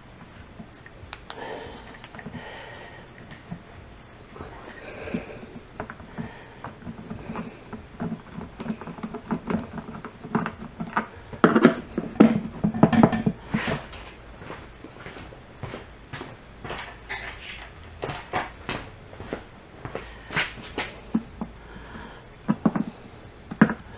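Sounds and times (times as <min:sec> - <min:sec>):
screwdriver and parts rattling: 0:16.6 - 0:19.3.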